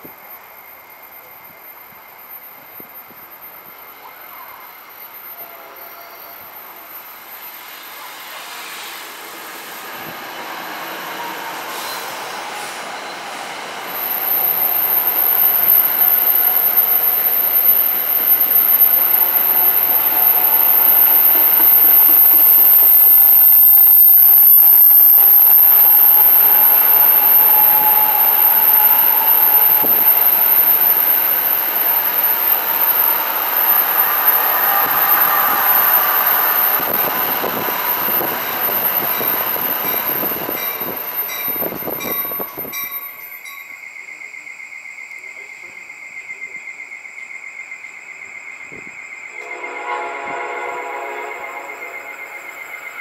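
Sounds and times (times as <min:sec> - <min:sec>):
thin high train whine: 0:00.0 - 0:53.0
train wheels rumbling on rails: 0:06.4 - 0:47.4.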